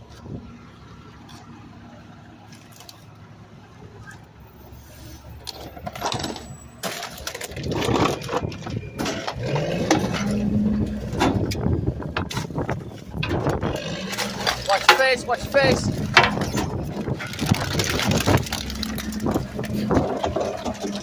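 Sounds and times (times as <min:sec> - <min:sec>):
trash crunching under compactor: 0:05.4 - 0:21.0
truck engine revving: 0:07.5 - 0:21.0.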